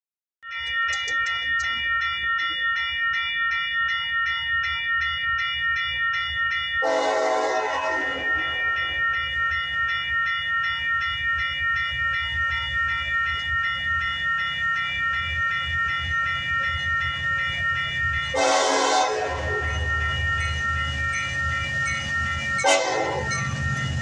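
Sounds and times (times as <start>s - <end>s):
rapid high ringing: 0.5s - 7.0s, 8.2s - 24.0s
freight train rumbling past: 6.8s - 24.0s.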